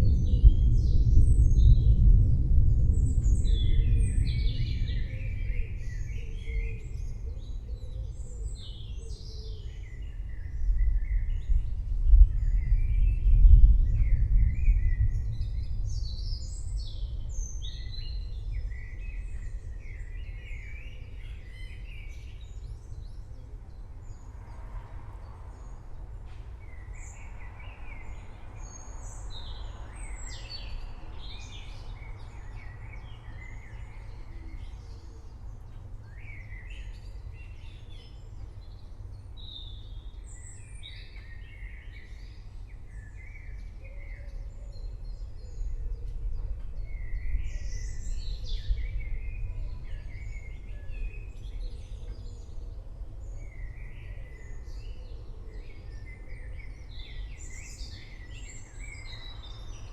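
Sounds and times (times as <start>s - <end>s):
distant thunder rumble: 0.0s - 7.1s, 10.5s - 20.0s
forest birds chirping: 0.0s - 59.9s.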